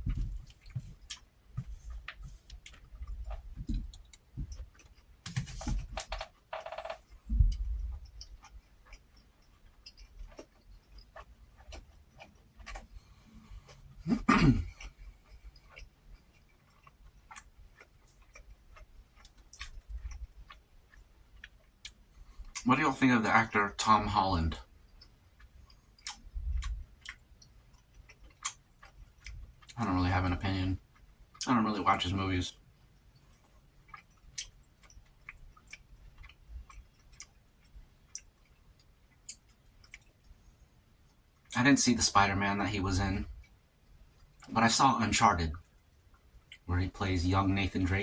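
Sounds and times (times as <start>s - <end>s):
person chewing food: 0.0s - 22.6s, 24.6s - 29.8s, 32.5s - 41.6s, 45.5s - 46.7s
person eating clicks and smacks: 2.0s - 5.1s, 6.3s - 13.8s, 14.7s - 22.6s, 24.9s - 29.8s, 33.4s - 40.3s.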